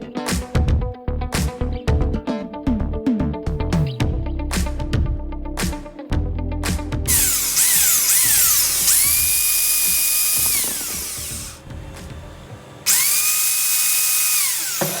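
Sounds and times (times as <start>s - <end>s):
angle grinder whining: 7.1s - 11.6s, 12.8s - 15.0s.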